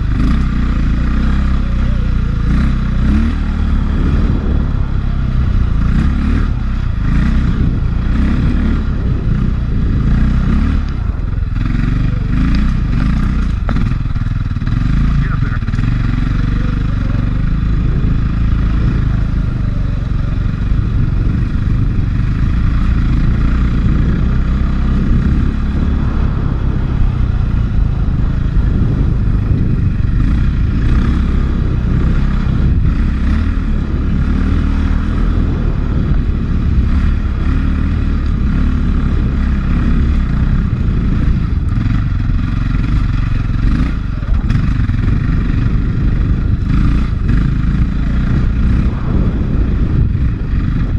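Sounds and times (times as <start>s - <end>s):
dirt bike engine running: 0.0s - 50.9s
bike knocks and rattles: 12.5s - 14.8s.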